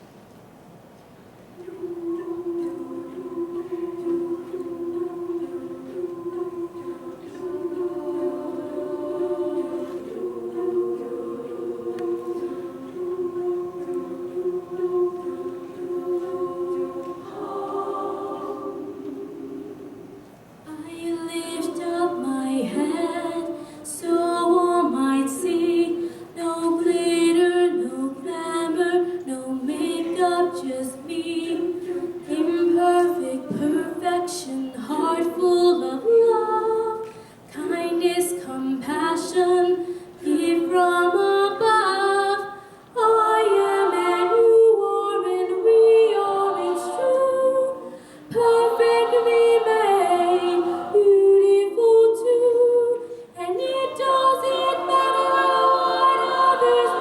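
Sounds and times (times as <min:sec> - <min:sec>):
choir singing in harmony: 0:01.6 - 0:57.0.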